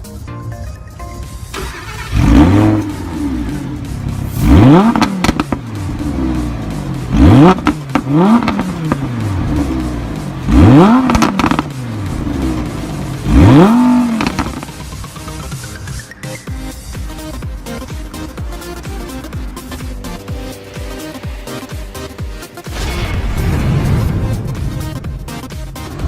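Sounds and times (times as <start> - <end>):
sports car engine revving: 1.6 - 16.0, 16.7 - 22.9.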